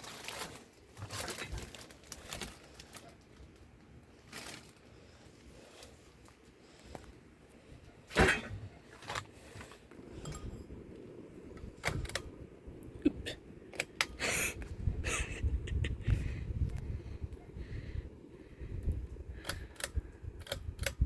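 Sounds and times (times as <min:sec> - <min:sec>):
ceiling fan rumbling: 0:00.0 - 0:21.0
sharp irregular clicks and clinks: 0:18.9 - 0:21.0.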